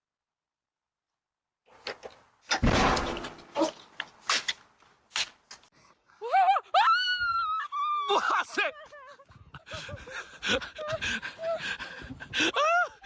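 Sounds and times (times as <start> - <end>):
sharp knocks: 2.5 - 3.6
deep thump: 2.6 - 3.5
person screaming: 6.2 - 8.8.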